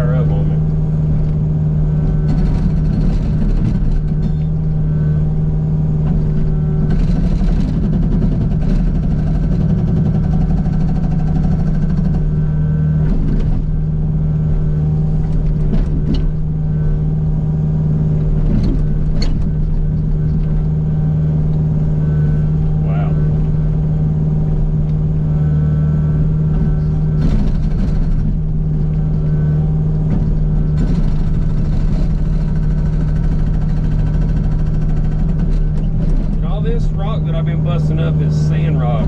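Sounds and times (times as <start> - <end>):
excavator diesel engine running: 0.0 - 39.0
hydraulic breaker hammering rock: 2.1 - 4.7, 6.0 - 12.4, 26.5 - 28.5, 30.1 - 37.0.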